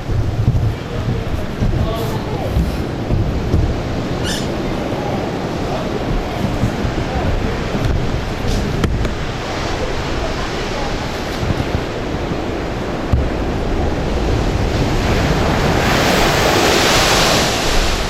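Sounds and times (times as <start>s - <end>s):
sea waves breaking: 0.0s - 18.0s
wind buffeting microphone: 0.0s - 18.0s.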